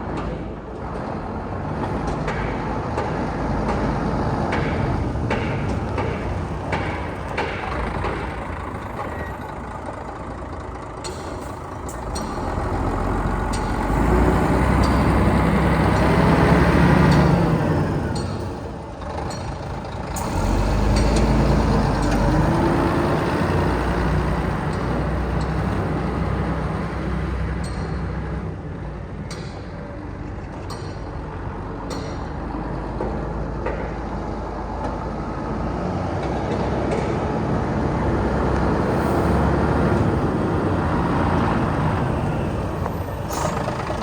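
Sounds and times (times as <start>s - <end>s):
diesel truck engine running: 0.9s - 33.5s, 34.2s - 44.0s.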